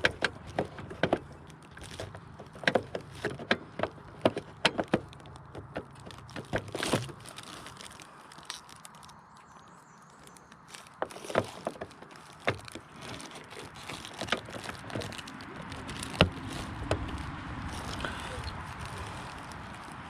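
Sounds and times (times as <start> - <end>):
hand tools clicking and knocking: 0.0 - 7.2.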